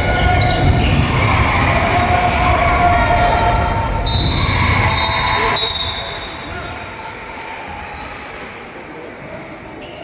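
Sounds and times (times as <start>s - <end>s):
crowd noise: 0.0s - 10.0s.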